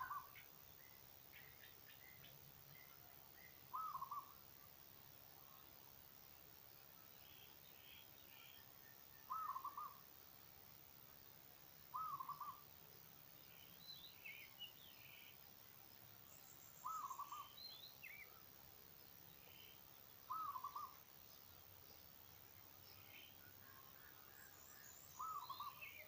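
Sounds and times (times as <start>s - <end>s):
bird hooting call: 0.0s - 0.4s, 3.7s - 4.3s, 9.3s - 10.0s, 11.9s - 12.6s, 16.8s - 17.5s, 20.3s - 21.0s, 25.2s - 26.0s
faint bird chirps: 0.0s - 26.0s.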